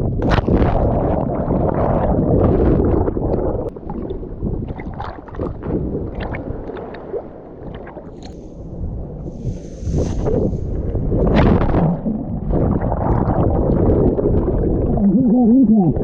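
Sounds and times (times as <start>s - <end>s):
small splashes and gurgles: 0.2s - 8.5s
water sloshing and lapping: 0.2s - 16.0s.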